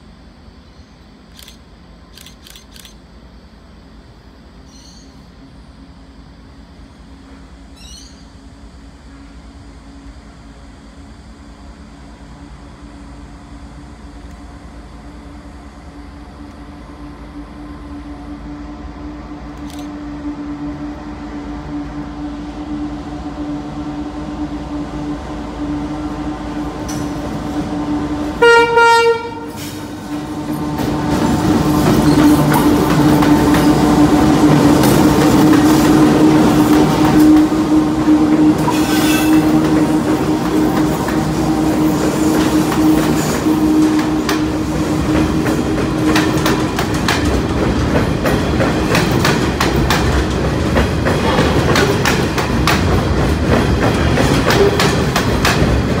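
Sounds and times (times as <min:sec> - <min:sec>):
diesel locomotive engine: 0:00.0 - 0:56.0
wheel-on-rail noise: 0:21.7 - 0:56.0
train horn blast: 0:26.9 - 0:30.0, 0:32.4 - 0:46.2.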